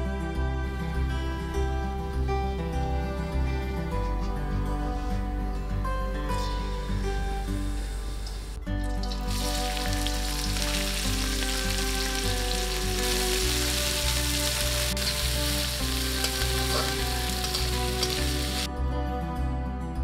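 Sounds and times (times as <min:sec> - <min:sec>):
soft background music: 0:00.0 - 0:20.0
onions sizzling in hot oil: 0:07.4 - 0:18.7.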